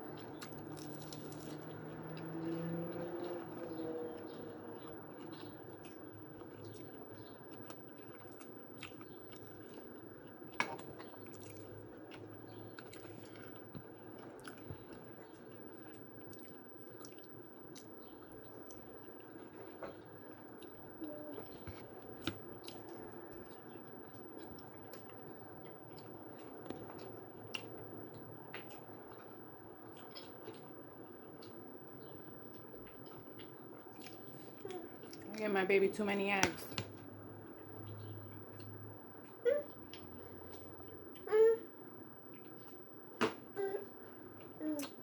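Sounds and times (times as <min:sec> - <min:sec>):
person chewing and smacking: 0:00.1 - 0:35.3.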